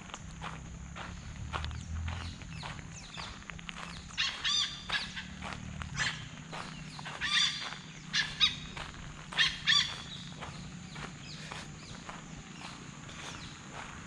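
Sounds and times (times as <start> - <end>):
footsteps on dirt road: 0.0 - 14.0
bird calling loudly: 2.1 - 12.2.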